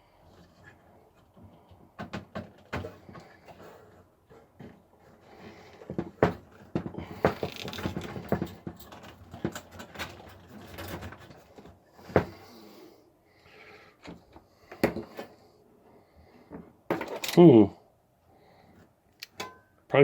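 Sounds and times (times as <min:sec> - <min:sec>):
clicks and rustling of cables: 0:00.3 - 0:12.4, 0:16.5 - 0:17.5.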